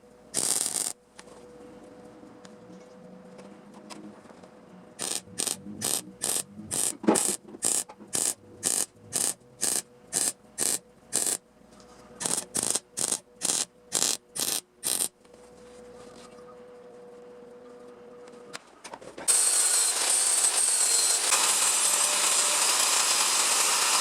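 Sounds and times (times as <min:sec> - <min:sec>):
hand tool scraping back and forth: 0:05.0 - 0:15.1.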